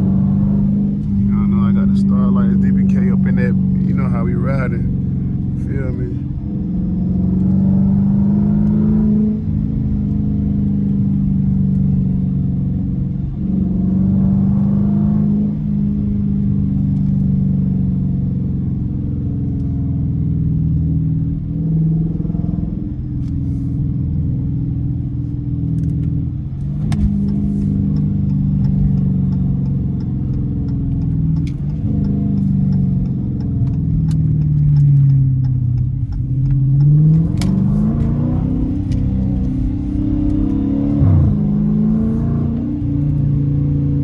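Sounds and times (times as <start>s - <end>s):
car engine revving through gears: 0.0s - 44.0s
sharp clicks: 26.8s - 40.6s.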